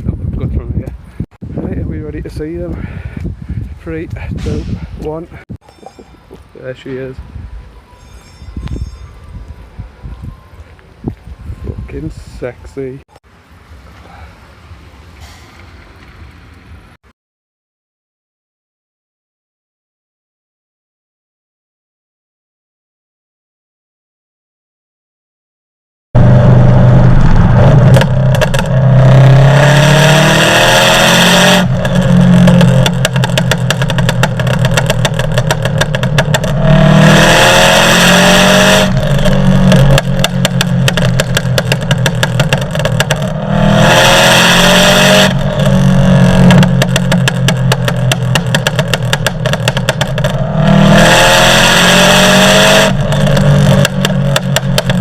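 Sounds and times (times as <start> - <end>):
blow-off valve hiss: 15.1 - 15.9
turbocharged engine accelerating: 26.2 - 55.0.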